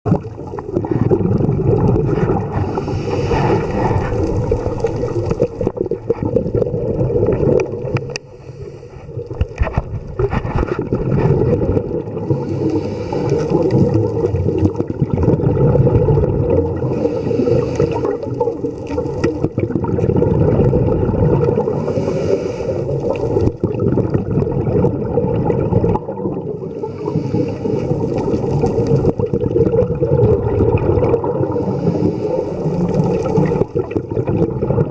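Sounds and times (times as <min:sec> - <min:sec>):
low underwater rumble: 0:00.1 - 0:08.4
regulator bubbling hiss: 0:00.1 - 0:09.6, 0:10.9 - 0:34.9.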